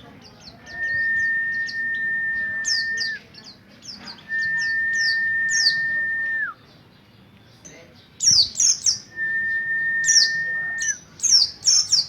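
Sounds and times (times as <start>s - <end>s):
bird singing high chirps: 0.2s - 12.0s
bird whistle-like tone: 0.8s - 3.2s, 4.3s - 6.4s, 8.9s - 11.0s.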